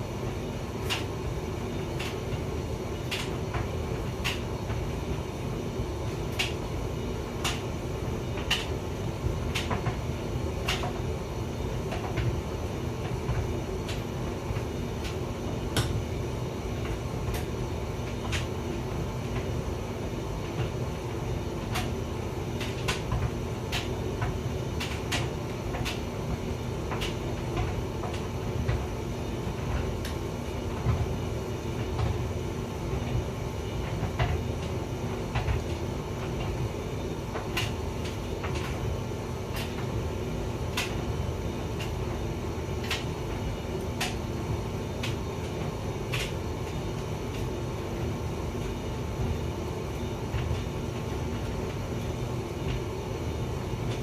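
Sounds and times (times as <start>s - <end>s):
tumble dryer drum humming: 0.0s - 54.0s
clicks and knocks of tumbling load: 20.4s - 54.0s.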